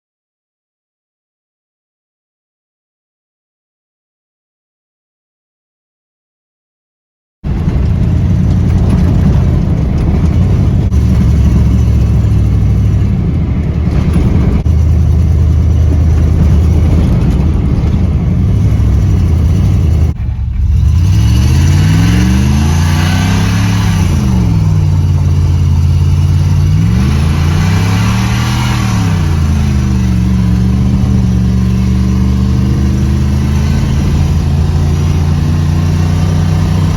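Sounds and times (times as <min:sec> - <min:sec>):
truck engine revving: 0:07.5 - 0:36.9.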